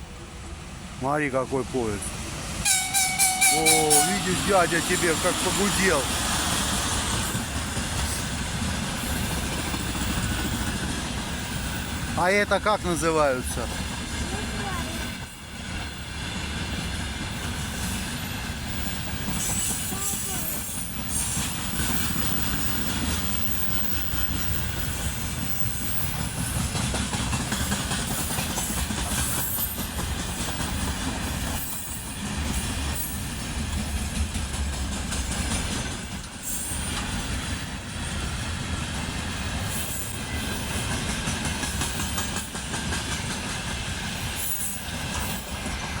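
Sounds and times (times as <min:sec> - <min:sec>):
freight train wagons rumbling: 0:00.0 - 0:46.0
wheels clattering over rails: 0:18.0 - 0:37.4.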